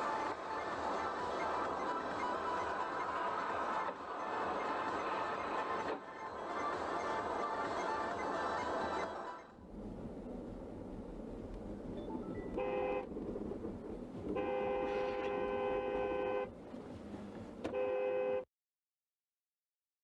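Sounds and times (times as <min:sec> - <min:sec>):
traffic rumble: 0:09.5 - 0:18.3
car horn honking: 0:12.5 - 0:13.1, 0:14.3 - 0:16.5, 0:17.7 - 0:18.5.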